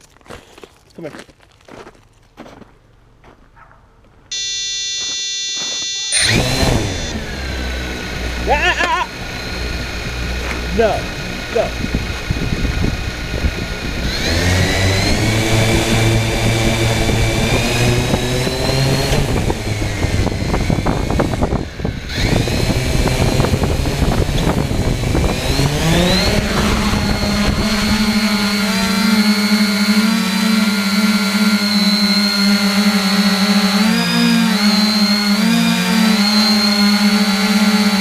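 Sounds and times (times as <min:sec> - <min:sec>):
quadcopter propellers whining: 0:04.3 - 0:38.0.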